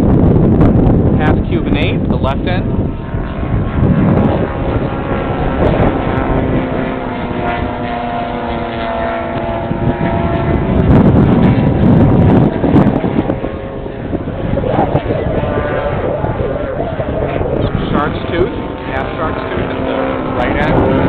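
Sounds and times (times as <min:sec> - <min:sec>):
model airplane engine running: 0:00.0 - 0:21.0
wind buffeting on microphone: 0:00.0 - 0:21.0.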